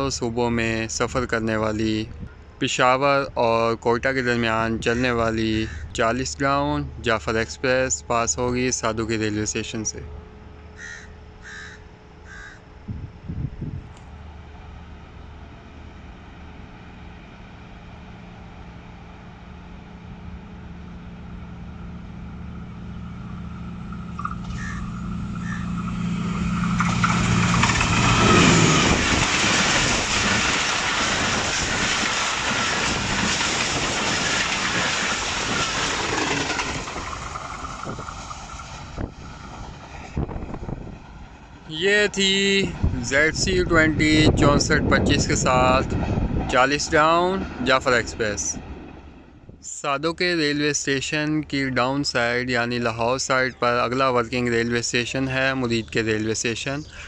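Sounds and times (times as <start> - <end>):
diesel locomotive engine drone: 0.0 - 57.0
wheels rushing on rail: 0.0 - 57.0
crow cawing: 10.8 - 12.6, 24.2 - 25.8.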